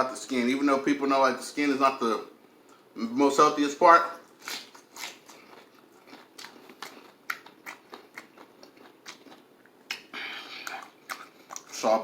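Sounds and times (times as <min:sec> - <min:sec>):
chewing crispy fried chicken: 0:04.2 - 0:11.8.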